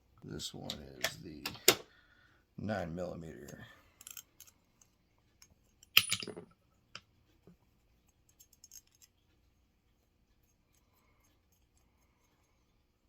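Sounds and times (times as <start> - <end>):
light clicks of metal tools: 3.4 - 9.4.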